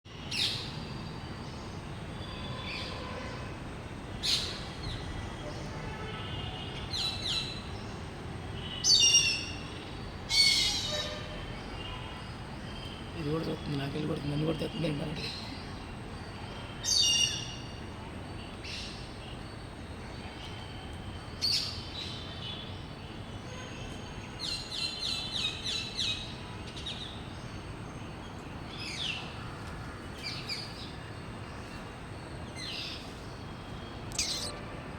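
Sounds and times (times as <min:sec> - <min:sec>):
bird giving short high calls: 0:34.1 - 0:34.6.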